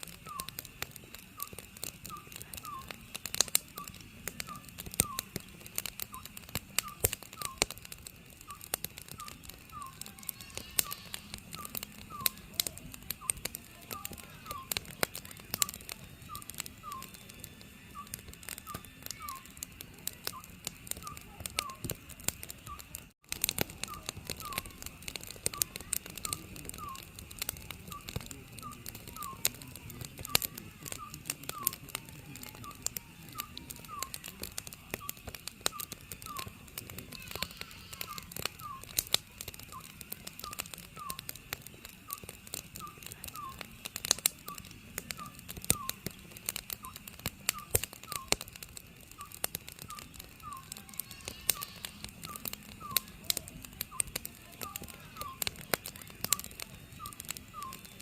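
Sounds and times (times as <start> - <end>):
wood fire crackling: 0.0 - 58.0
owl hooting: 8.5 - 12.4, 26.3 - 29.5, 35.1 - 39.0, 49.2 - 53.1.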